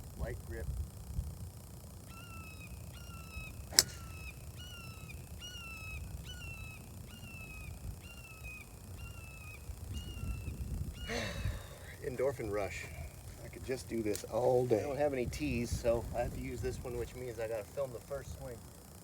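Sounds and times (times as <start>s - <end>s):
golf club striking ball: 3.7s - 4.8s.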